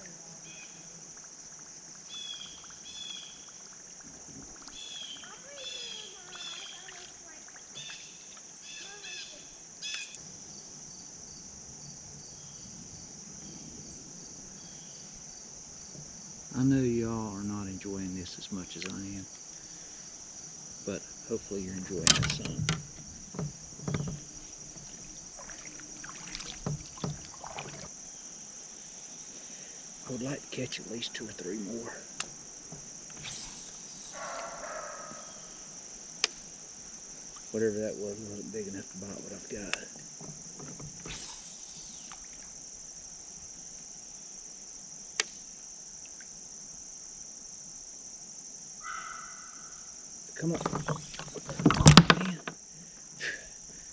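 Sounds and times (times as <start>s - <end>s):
insects droning: 0.0s - 53.9s
water splashing: 6.3s - 8.5s, 18.5s - 19.2s, 20.9s - 28.1s
kayak knocks: 21.7s - 28.0s, 32.6s - 33.3s, 40.1s - 41.2s, 50.5s - 52.6s
sharp click: 45.2s - 45.5s.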